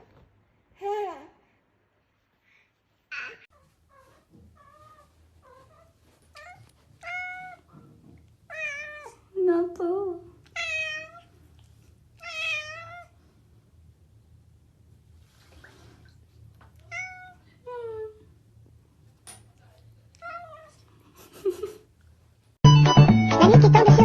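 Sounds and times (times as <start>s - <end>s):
cat meowing: 4.6s - 7.7s, 8.5s - 9.2s, 10.5s - 11.3s, 12.2s - 13.1s, 16.8s - 17.4s.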